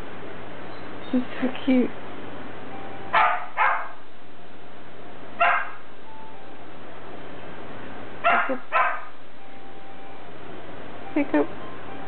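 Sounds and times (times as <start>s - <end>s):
dog yipping: 3.1s - 4.0s, 5.4s - 5.9s, 8.2s - 9.2s.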